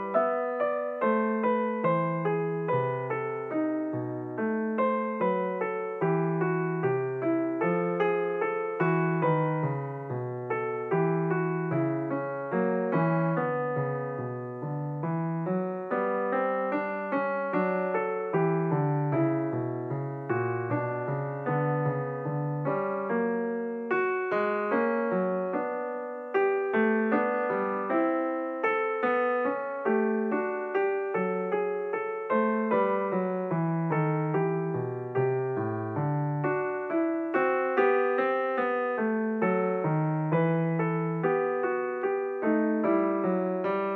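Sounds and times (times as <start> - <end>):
piano music: 0.0 - 43.9.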